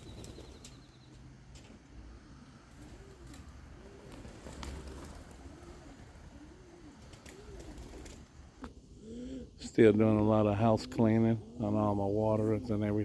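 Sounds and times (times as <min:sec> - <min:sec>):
pigeon cooing: 0:02.1 - 0:09.6, 0:10.5 - 0:13.0.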